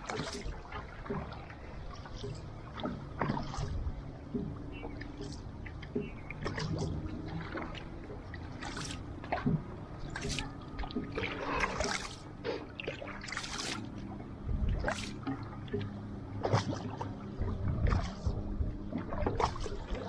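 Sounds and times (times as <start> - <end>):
canoe paddles splashing: 0.0 - 20.0
water washing along hull: 0.0 - 20.0
low rumble: 13.9 - 20.0.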